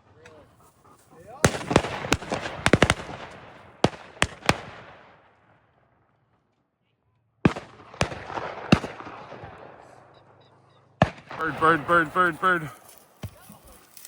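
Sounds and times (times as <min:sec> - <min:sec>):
shotgun shots echoing: 0:01.4 - 0:05.3, 0:07.4 - 0:12.8.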